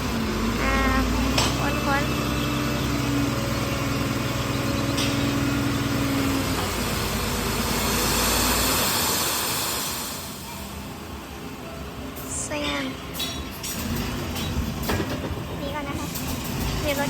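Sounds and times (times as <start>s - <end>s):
truck engine running: 0.0s - 17.0s
broad rushing noise: 5.1s - 11.0s.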